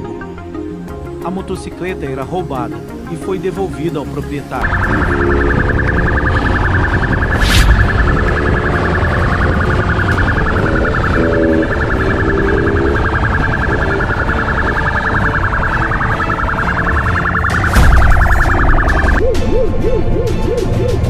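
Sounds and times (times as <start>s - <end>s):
low rumble: 4.6s - 19.4s
police siren warbling: 4.6s - 20.8s.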